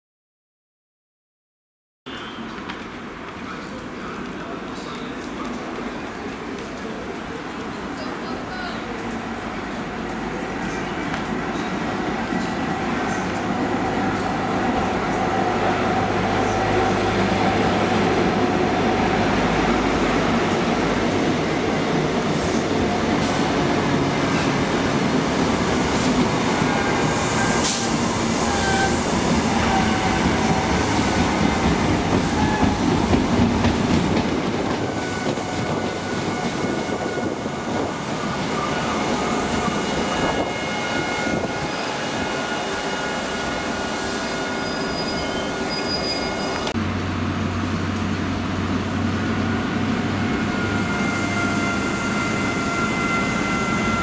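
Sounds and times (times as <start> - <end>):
diesel train engine droning: 8.3 - 54.0
train wheels clacking: 26.0 - 37.3
wheel and brake squeals: 44.0 - 46.8.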